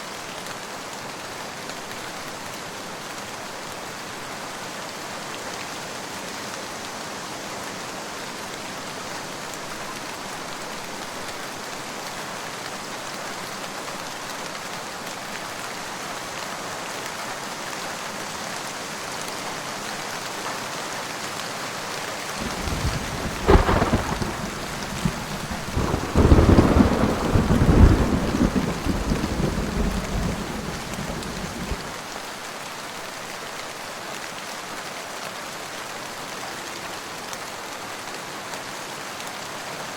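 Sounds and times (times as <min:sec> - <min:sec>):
rain falling: 0:00.1 - 0:39.5
thunderclap and rolling rumble: 0:22.4 - 0:32.0.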